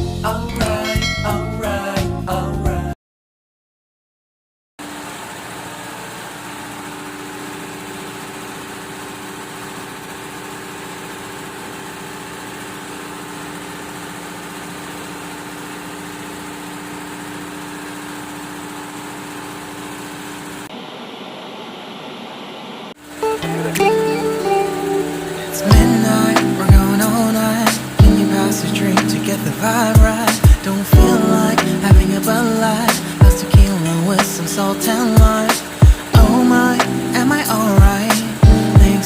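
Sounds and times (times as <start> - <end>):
music: 0.0 - 3.0, 23.2 - 39.0
engine-room machinery drone: 4.8 - 39.0
hissy machinery noise: 4.8 - 39.0.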